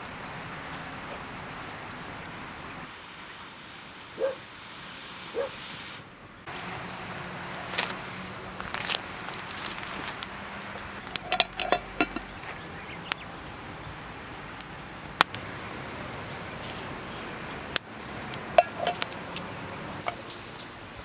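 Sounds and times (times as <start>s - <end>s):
sharp clicks and knocks: 10.9s - 13.2s
light metallic clinks: 11.0s - 15.2s, 18.3s - 20.8s.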